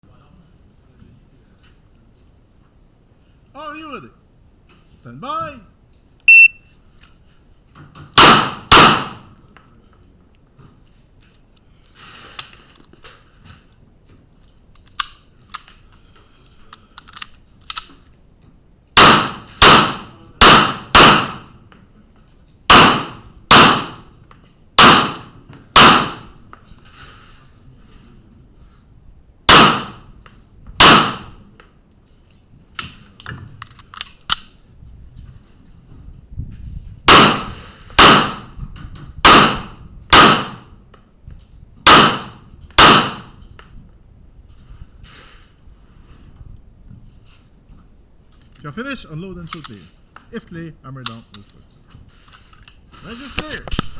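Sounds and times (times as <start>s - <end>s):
pistol shots: 8.2s - 9.3s, 19.0s - 21.5s, 22.7s - 24.1s, 24.8s - 26.4s, 29.5s - 30.1s, 30.8s - 31.4s, 37.1s - 38.5s, 39.2s - 40.7s, 41.9s - 43.3s.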